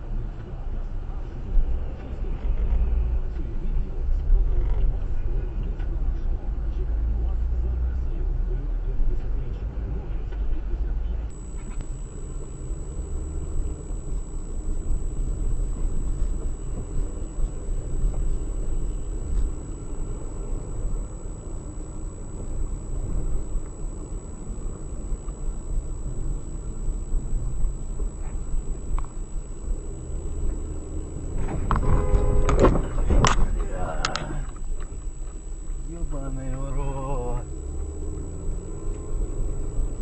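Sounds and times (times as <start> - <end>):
car engine and road noise: 0.0 - 40.0
loud pitched tone: 11.3 - 40.0.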